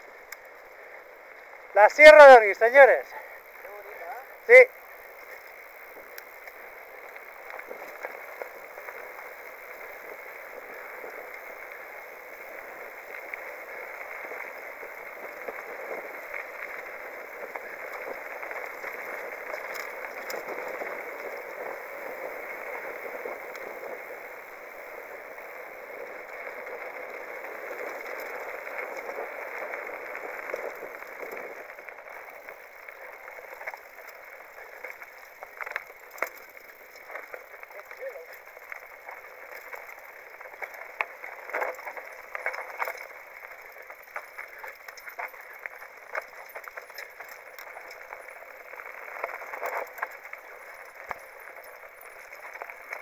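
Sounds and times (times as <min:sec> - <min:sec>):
bike tyres rolling on dirt: 0:00.0 - 0:53.0
small clicks: 0:05.2 - 0:08.1.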